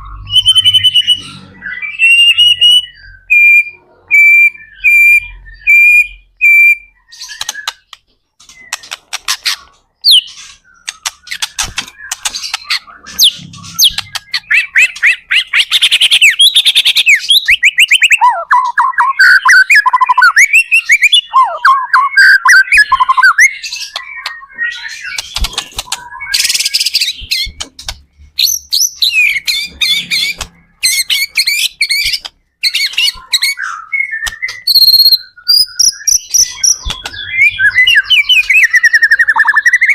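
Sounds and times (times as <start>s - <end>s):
songbird singing whistles and trills: 0.0s - 9.0s, 10.0s - 27.6s, 28.2s - 39.9s.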